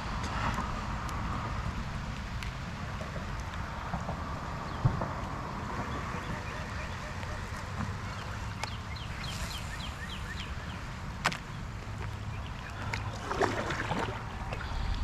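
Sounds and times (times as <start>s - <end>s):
boat engine rumble: 1.8s - 15.0s
bird chirping: 5.8s - 10.9s
splash-like rustle: 12.8s - 14.8s.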